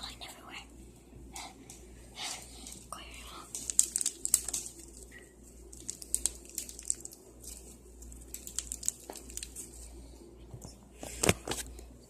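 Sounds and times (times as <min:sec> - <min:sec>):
crunchy slime crackling: 0:02.5 - 0:10.1.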